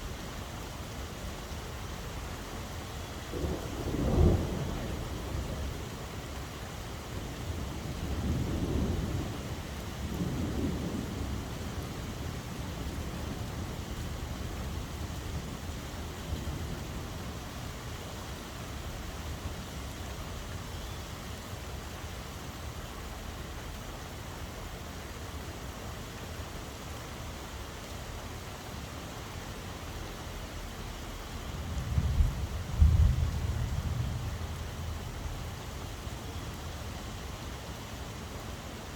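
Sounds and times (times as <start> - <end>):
steady rain falling: 0.0 - 38.9
low thunder rumbles: 3.3 - 6.1, 7.7 - 15.5, 31.5 - 35.8.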